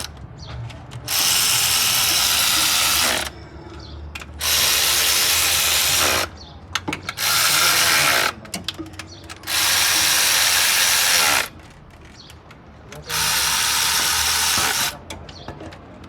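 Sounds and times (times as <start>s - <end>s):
power tool bursts: 1.1s - 3.4s, 4.4s - 6.3s, 7.1s - 8.4s, 9.4s - 11.5s, 13.1s - 15.0s.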